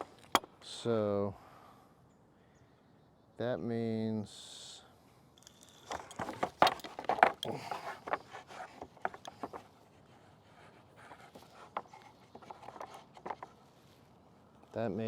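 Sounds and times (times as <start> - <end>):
pulley clicks and knocks: 5.4 - 9.7
rope rustling and scraping: 5.6 - 14.1.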